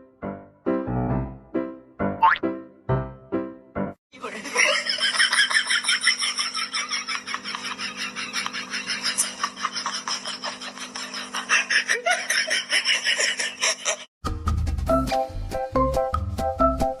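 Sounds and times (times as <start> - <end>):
hearty human laughter: 4.2 - 14.1
light music: 14.2 - 17.0.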